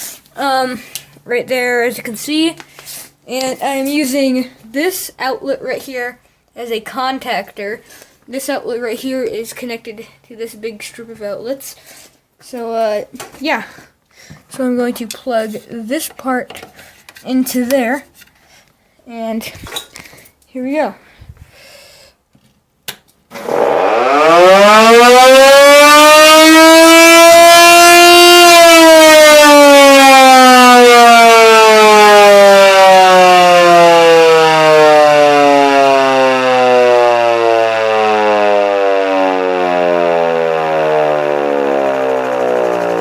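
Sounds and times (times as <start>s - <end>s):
siren wailing: 23.3s - 43.0s.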